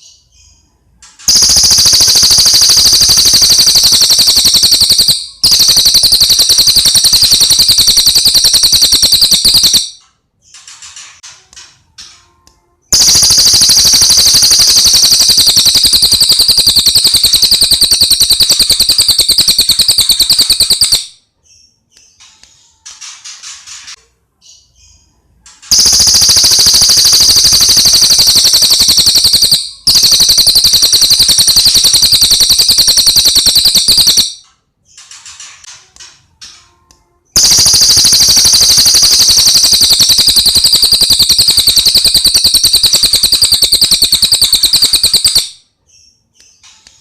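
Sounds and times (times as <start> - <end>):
bird trilling: 1.3 - 9.9, 12.9 - 21.1, 25.7 - 34.3.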